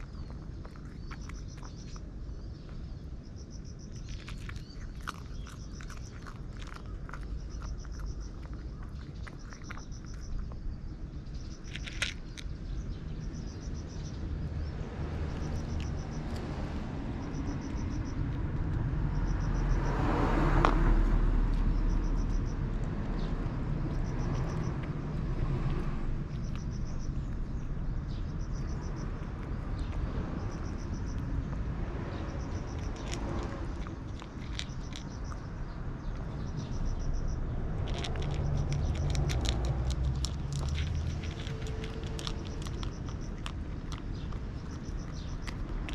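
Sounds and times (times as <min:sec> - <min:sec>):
cat chewing dry food: 0:00.0 - 0:14.1, 0:19.7 - 0:45.9
passing vehicle rumble: 0:03.6 - 0:45.9.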